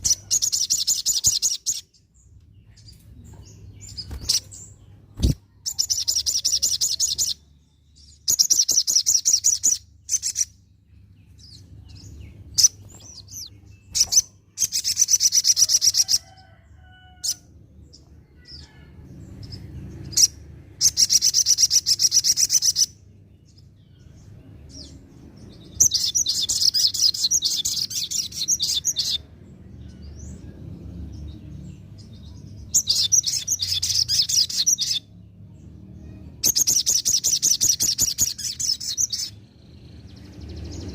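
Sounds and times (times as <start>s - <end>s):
bird twittering song: 0.0s - 40.9s
bird sharp chips: 3.8s - 7.3s.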